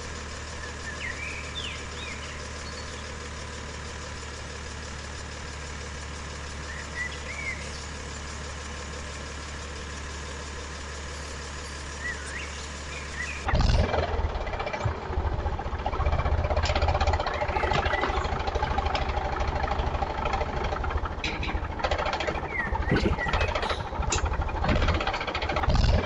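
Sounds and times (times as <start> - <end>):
vehicle engine idling: 0.0 - 26.0
short bird chirps: 11.1 - 13.4.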